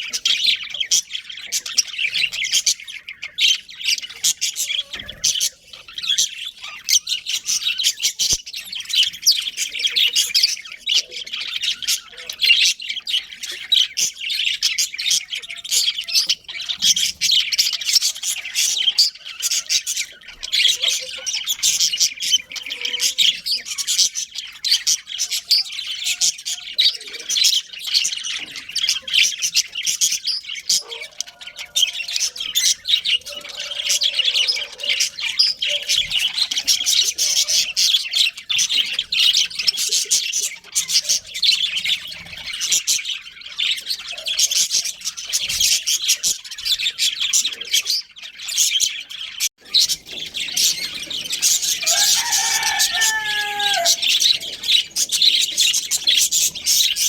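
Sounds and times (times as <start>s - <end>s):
budgerigars chirping and chattering: 0.0s - 57.0s.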